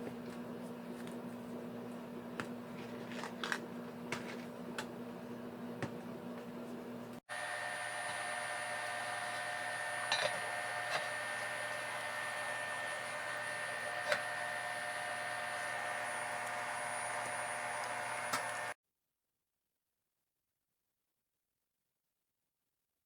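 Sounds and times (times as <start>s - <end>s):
small motor whirring: 7.3s - 18.8s.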